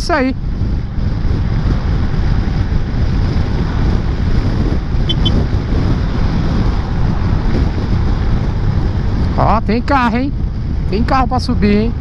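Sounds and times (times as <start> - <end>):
wind buffeting microphone: 0.0 - 12.0
short high beeps: 5.1 - 5.4.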